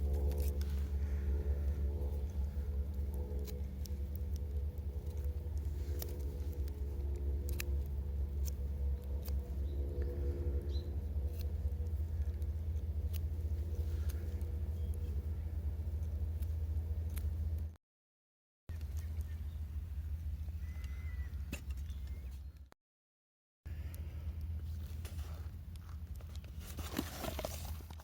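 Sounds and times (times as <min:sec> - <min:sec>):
low rumble: 0:00.0 - 0:17.8.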